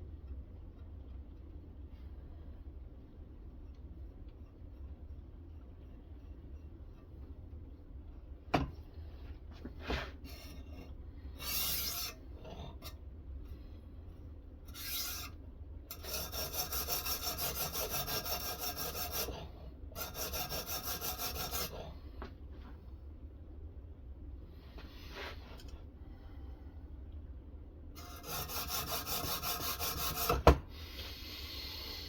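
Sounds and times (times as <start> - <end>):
sharpening stone scraping knife edge: 11.4 - 12.2, 14.7 - 15.3, 15.9 - 19.3.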